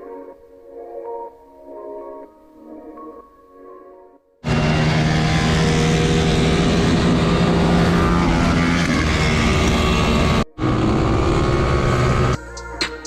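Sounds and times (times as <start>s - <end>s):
off-road vehicle engine running: 4.4s - 12.4s.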